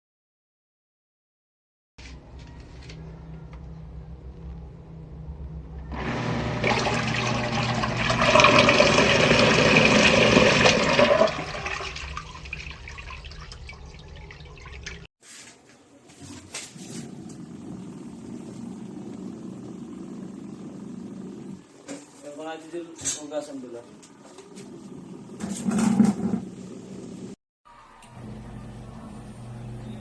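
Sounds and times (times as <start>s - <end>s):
washing machine motor humming: 5.5s - 15.1s, 16.7s - 22.6s, 24.0s - 30.0s
water churning in tub: 6.0s - 15.1s.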